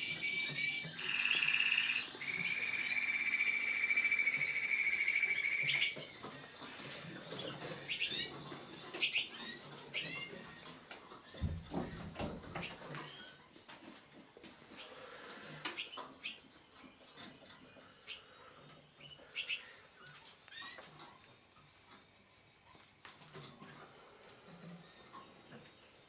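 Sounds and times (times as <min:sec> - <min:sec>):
canary singing trills and chirps: 0:00.0 - 0:11.3, 0:15.7 - 0:21.6.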